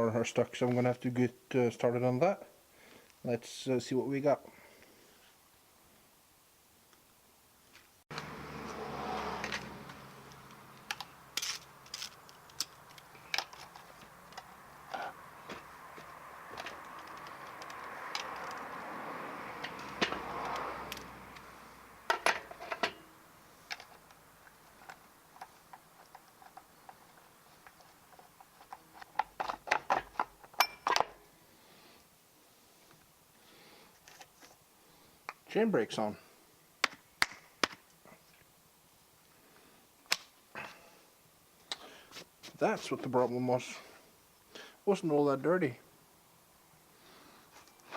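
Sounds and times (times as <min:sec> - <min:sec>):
low steady noise: 0:00.0 - 0:08.3
metallic clicks and rattles: 0:09.4 - 0:15.1, 0:16.6 - 0:18.7.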